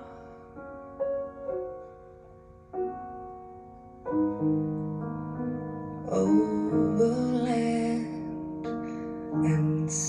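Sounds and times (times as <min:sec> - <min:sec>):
soft piano chords: 0:00.0 - 0:10.0.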